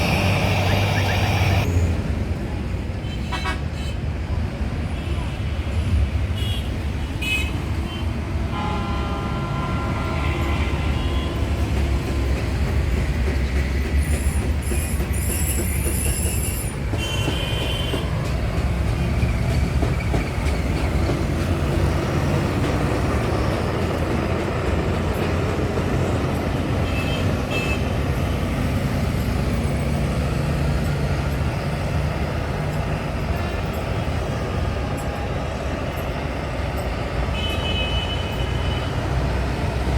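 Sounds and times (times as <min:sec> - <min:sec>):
vehicle engines rumbling: 0:00.0 - 0:03.0, 0:14.5 - 0:37.4
vehicle horns: 0:08.5 - 0:11.5.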